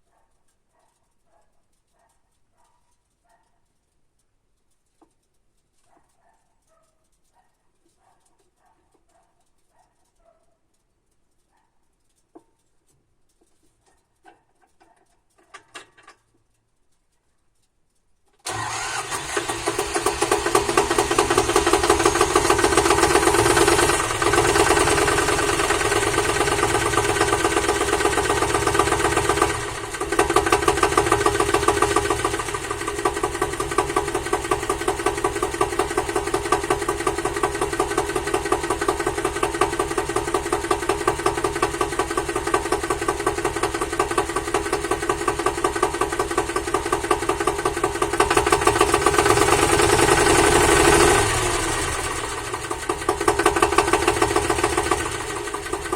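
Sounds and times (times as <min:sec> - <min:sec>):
faint clicks: 0:00.0 - 0:19.4
diesel tractor engine running: 0:18.5 - 0:55.9.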